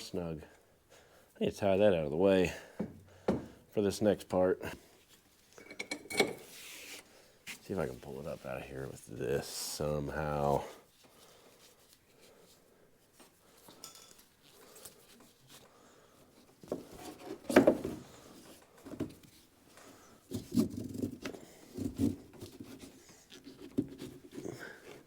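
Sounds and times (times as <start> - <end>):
tools knocking and clunking: 2.8 - 3.6, 5.6 - 6.5.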